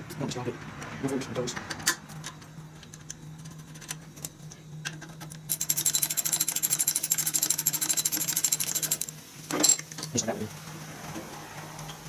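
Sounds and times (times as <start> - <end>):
scattered clicks and knocks: 0.0 - 10.2
ratchet clicking rapidly: 5.4 - 9.8.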